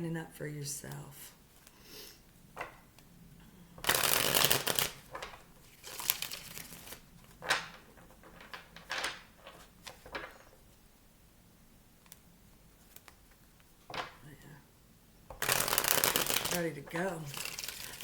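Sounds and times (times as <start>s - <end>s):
cards snapping and tapping: 3.8s - 10.4s, 15.3s - 18.0s
cards riffling: 3.8s - 10.6s, 15.3s - 18.0s.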